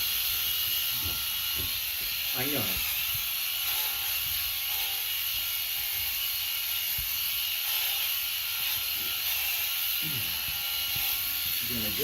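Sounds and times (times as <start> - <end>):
electric shearing clippers whirring: 0.0 - 12.0.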